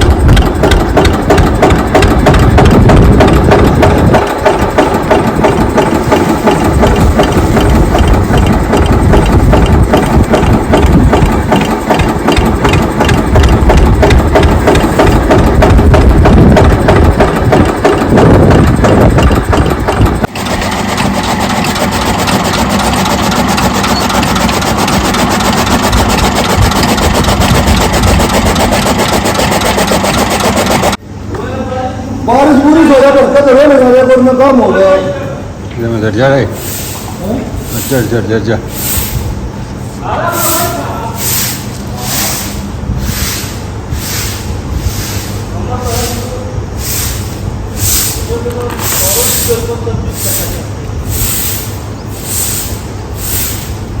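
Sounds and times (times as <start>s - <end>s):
engine idling: 0.0s - 31.0s.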